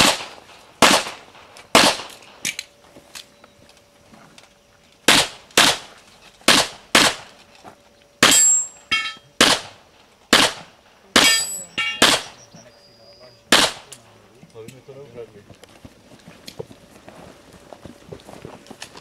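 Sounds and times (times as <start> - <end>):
handgun shots: 0.0 - 1.2, 1.8 - 2.2, 5.1 - 5.9, 6.5 - 7.3, 9.4 - 12.4, 13.5 - 14.0
steel targets ringing: 8.2 - 9.4, 11.2 - 12.4.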